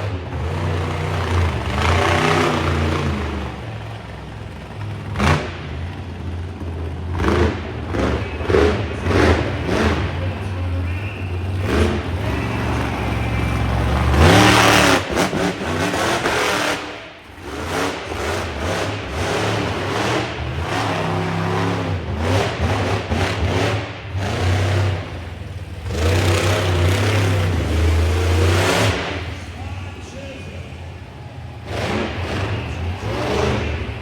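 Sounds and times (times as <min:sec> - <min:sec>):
monster truck engine revving: 0:00.0 - 0:34.0.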